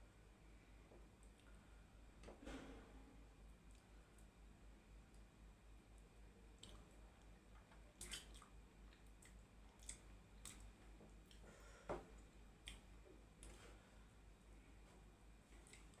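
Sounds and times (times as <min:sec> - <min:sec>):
chewing smacks and clicks: 0:08.0 - 0:11.4, 0:12.2 - 0:13.6.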